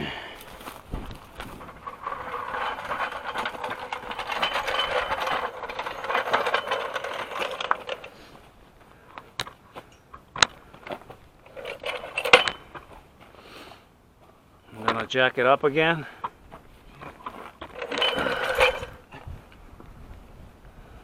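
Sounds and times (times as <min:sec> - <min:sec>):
car jack metallic rattle: 0:01.4 - 0:08.2, 0:11.4 - 0:12.9, 0:17.2 - 0:19.1
car jack clanks: 0:01.7 - 0:08.2, 0:11.5 - 0:12.9, 0:17.2 - 0:19.0.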